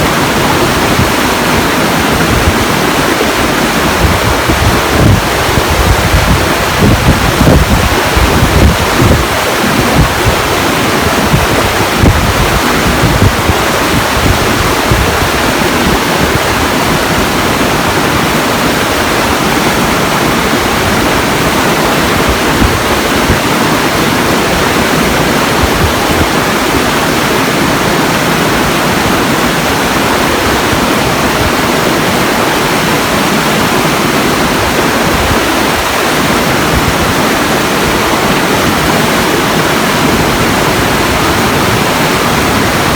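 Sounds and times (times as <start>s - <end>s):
rushing water roar: 0.0s - 42.9s
wind buffeting microphone: 0.0s - 42.9s.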